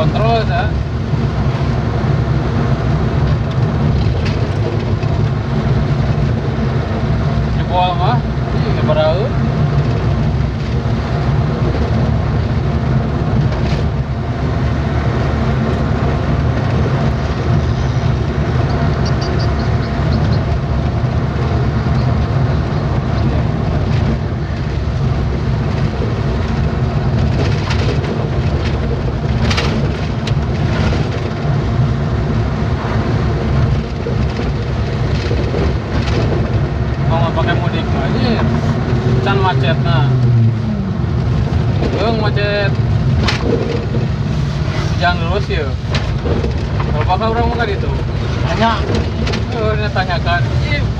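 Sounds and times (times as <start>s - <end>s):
vehicle engine hum and road rumble: 0.0s - 50.9s
knocks and rattles: 3.2s - 6.4s, 18.2s - 31.9s, 33.4s - 39.0s, 45.7s - 50.2s.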